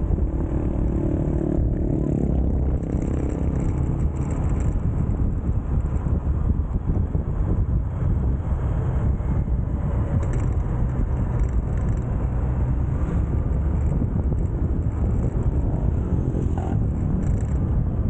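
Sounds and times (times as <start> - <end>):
motorcycle engine running: 0.0 - 18.0
wind rush on microphone: 0.0 - 18.0.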